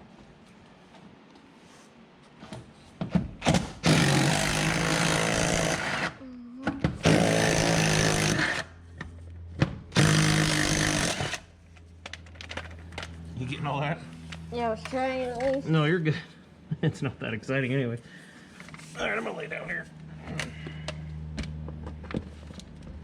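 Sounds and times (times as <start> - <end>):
impact wrench hammering: 3.4 - 6.1, 6.9 - 8.7, 9.6 - 11.5.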